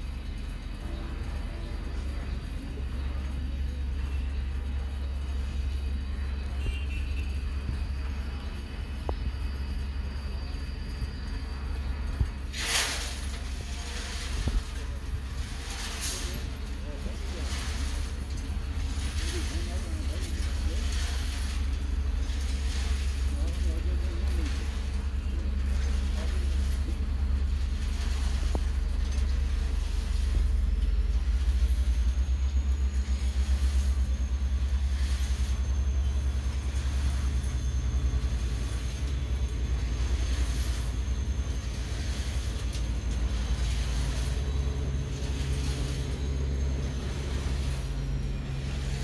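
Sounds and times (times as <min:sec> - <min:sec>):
train rumbling past: 0:00.0 - 0:49.0.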